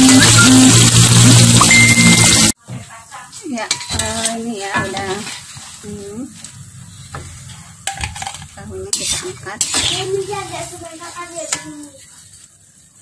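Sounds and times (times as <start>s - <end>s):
tofu sizzling in hot oil: 0.0s - 13.0s
metal spatula scraping wok: 3.5s - 12.7s.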